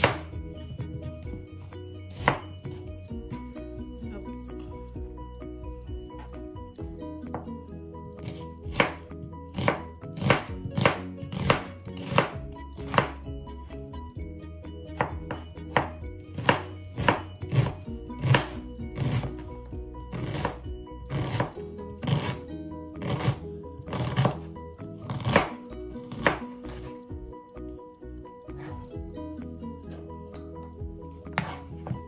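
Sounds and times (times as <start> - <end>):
knife chopping on cutting board: 0.0 - 0.3, 2.1 - 2.5, 8.2 - 13.2, 15.0 - 19.3, 20.2 - 22.4, 23.0 - 24.4, 25.1 - 26.8, 31.3 - 32.0.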